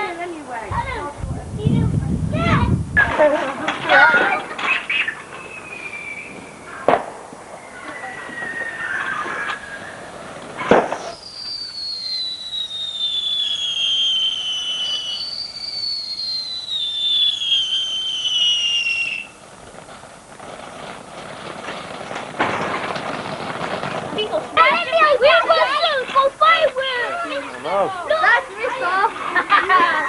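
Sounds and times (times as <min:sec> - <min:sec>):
noisy rush: 0:00.0 - 0:16.0
firework bang: 0:00.7 - 0:26.3
firework whistles falling in pitch: 0:03.9 - 0:20.1.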